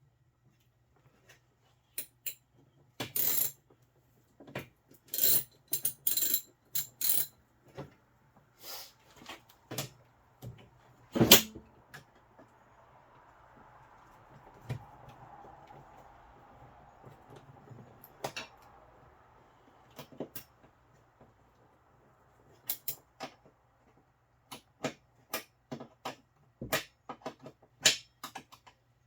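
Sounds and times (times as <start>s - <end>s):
metal hand tools clinking: 22.7s - 23.0s.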